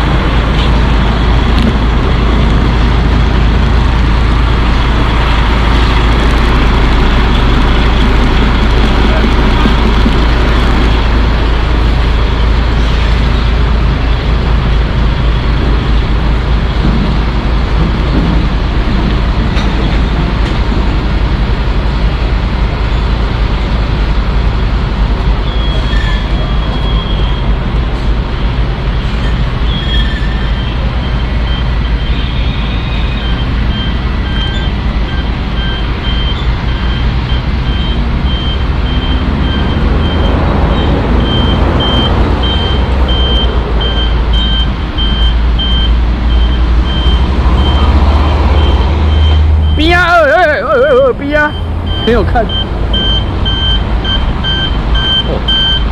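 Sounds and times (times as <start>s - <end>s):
truck diesel engine rumbling: 0.0s - 55.9s
short high-pitched beeps: 51.4s - 55.9s.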